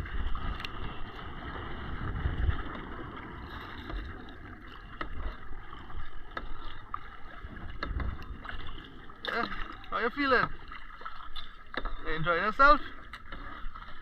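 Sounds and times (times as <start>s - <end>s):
wind rumbling on microphone: 0.0s - 10.8s
water washing: 0.0s - 14.0s.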